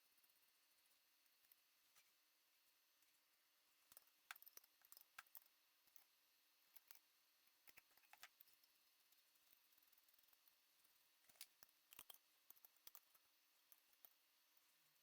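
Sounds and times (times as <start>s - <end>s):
faint light clicks and ticks: 3.8s - 15.0s.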